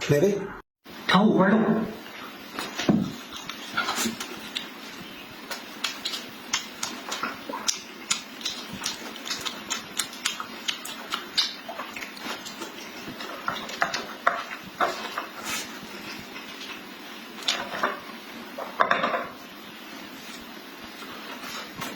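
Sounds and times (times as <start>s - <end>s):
person chewing with wet smacks: 2.6s - 17.6s.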